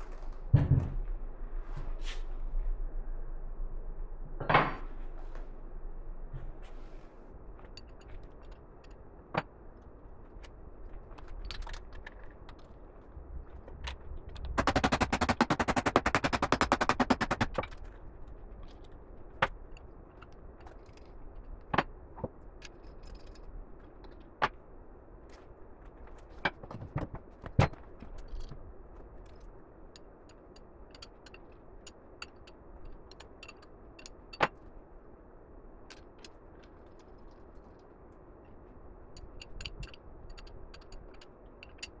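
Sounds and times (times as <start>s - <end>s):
rapid metallic hits: 14.6s - 17.8s.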